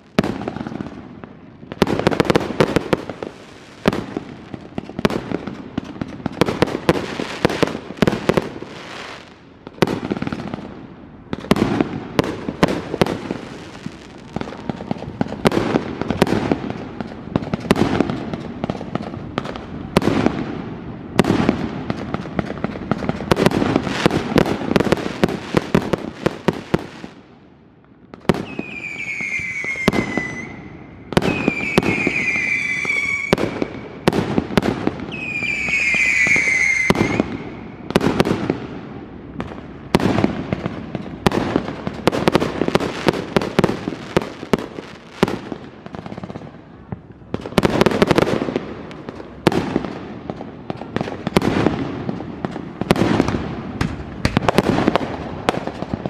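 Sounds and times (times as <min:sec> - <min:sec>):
whistling fireworks: 0:00.0 - 0:27.3, 0:28.1 - 0:56.0
fireworks crackle: 0:00.0 - 0:27.4, 0:28.2 - 0:56.0
fireworks bangs and pops: 0:00.0 - 0:56.0.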